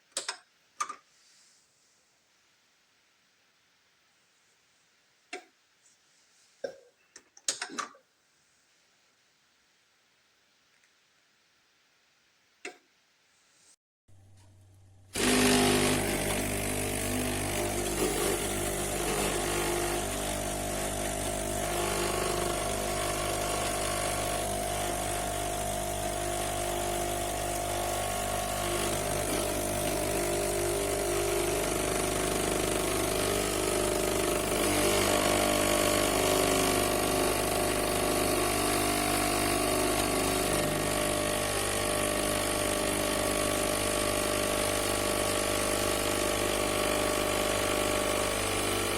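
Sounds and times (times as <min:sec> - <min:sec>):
espresso machine pump buzzing: 0:15.2 - 0:48.9.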